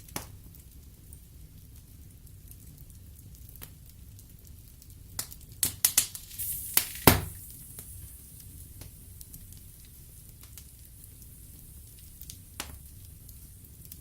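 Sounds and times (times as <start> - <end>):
wood fire crackling: 0.0 - 14.0
brief hiss from fire: 5.7 - 13.8.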